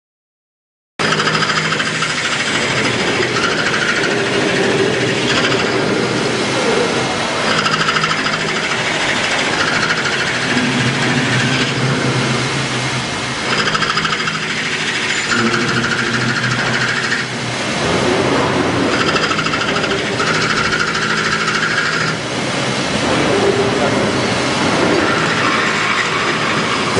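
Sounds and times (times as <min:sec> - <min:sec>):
lathe whirring and rattling: 0:01.0 - 0:26.9
machine tones changing pitch: 0:13.4 - 0:17.4.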